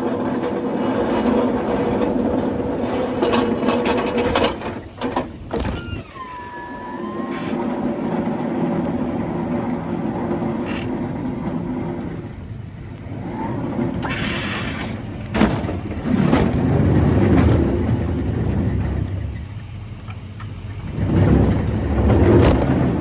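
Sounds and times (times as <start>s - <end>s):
truck engine running: 6.3s - 23.0s.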